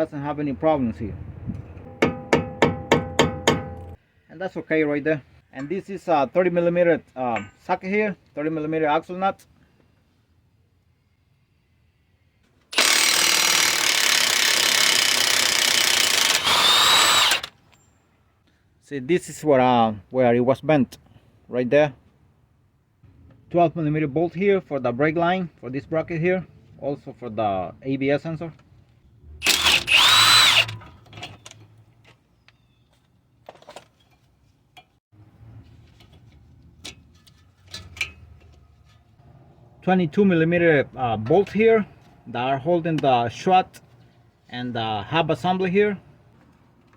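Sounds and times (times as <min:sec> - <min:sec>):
impact wrench hammering: 0:01.9 - 0:04.0, 0:12.8 - 0:17.5, 0:29.4 - 0:30.8
cordless power tool whirring: 0:12.8 - 0:17.6, 0:29.4 - 0:31.4.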